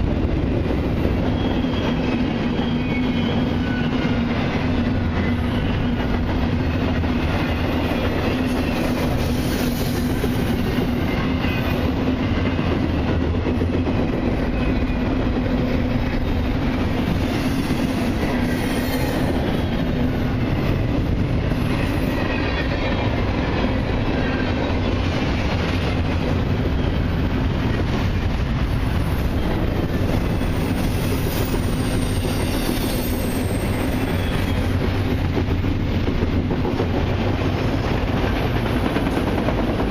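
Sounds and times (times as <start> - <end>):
train wheels rumbling on rails: 0.0 - 39.9
faint wheel squeal: 18.5 - 19.3, 30.5 - 34.8.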